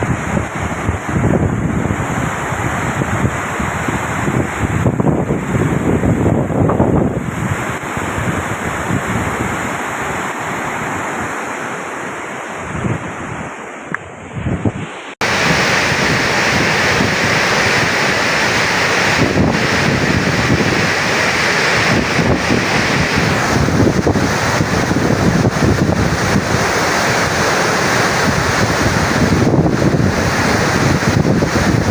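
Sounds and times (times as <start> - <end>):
water rushing through spillway: 0.0 - 13.7, 14.6 - 31.9
wind buffeting microphone: 0.0 - 31.9.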